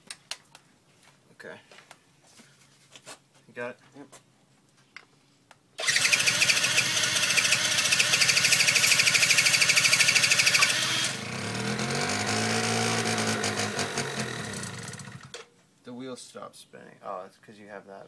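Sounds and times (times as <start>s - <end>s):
scooter engine cranking: 5.8s - 15.4s
engine running unevenly: 11.0s - 15.4s.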